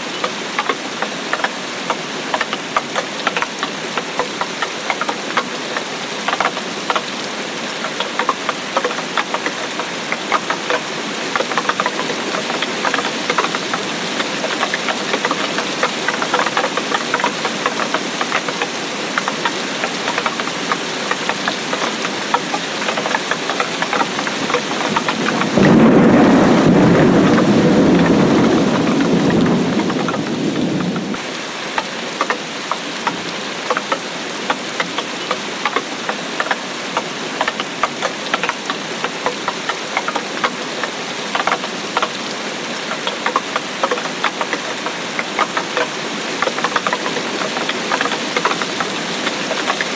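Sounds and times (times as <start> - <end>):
rain drops pattering: 0.0 - 49.9
thunder rumbling: 24.3 - 31.2.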